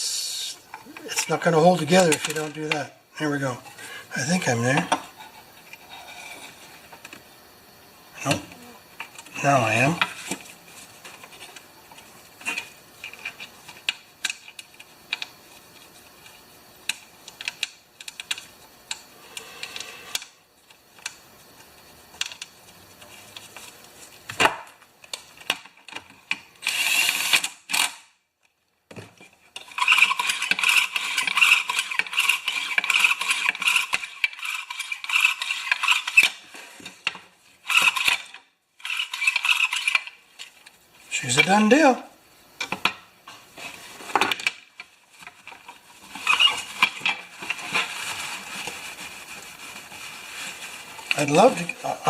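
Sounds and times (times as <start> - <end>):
recoil starter being handled: 42.6 - 51.6.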